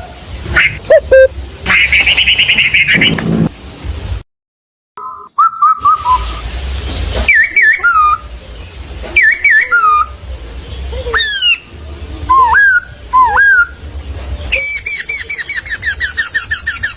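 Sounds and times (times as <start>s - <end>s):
bird whistling calls: 0.9s - 1.3s, 5.0s - 6.4s, 7.2s - 8.3s, 9.2s - 10.2s, 11.1s - 11.7s, 12.3s - 13.8s, 14.5s - 16.9s.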